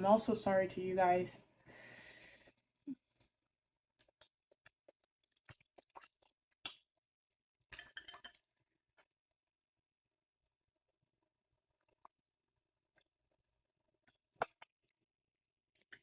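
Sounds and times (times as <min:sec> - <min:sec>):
person chewing noodles: 0:04.0 - 0:06.8.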